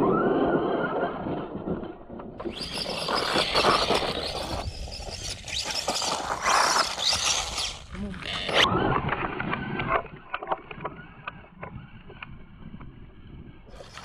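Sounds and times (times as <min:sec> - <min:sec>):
electric rc car motor whine: 0:00.0 - 0:01.6, 0:02.4 - 0:14.0
tyres scrabbling and scraping: 0:02.4 - 0:11.0.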